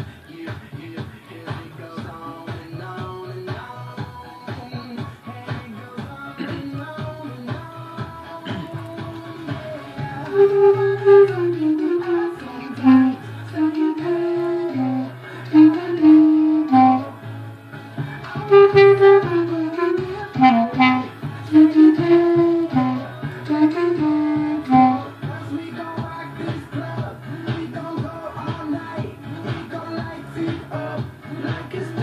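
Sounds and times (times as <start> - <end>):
pop backing track: 0.0 - 32.0
clarinet melody: 10.2 - 17.3, 18.3 - 25.2.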